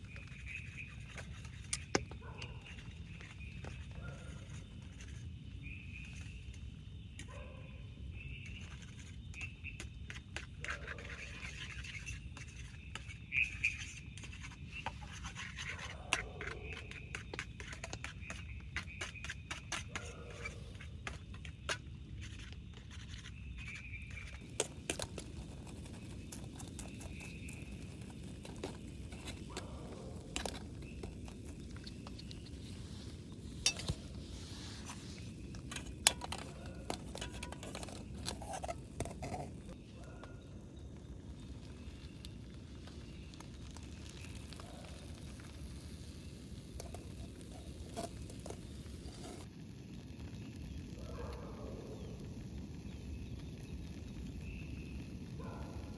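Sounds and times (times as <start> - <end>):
cookware clicking and scraping: 33.4 - 39.8.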